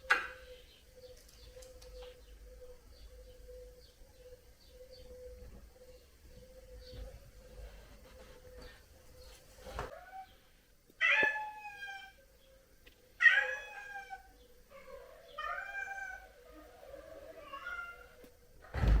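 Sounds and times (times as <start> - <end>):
cat meowing: 11.0 - 12.2, 13.2 - 14.3, 15.4 - 18.2.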